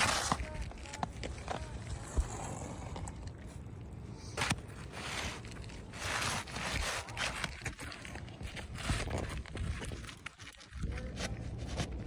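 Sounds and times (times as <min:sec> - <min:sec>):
roof shingles scraping and rustling: 0:00.0 - 0:01.6, 0:04.4 - 0:10.5.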